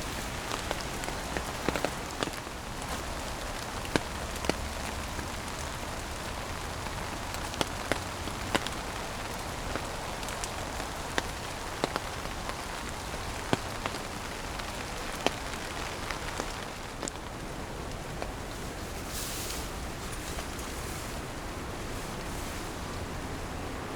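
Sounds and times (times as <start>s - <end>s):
loud raindrops landing close: 0.0s - 23.1s
steady rain hiss: 0.0s - 23.9s.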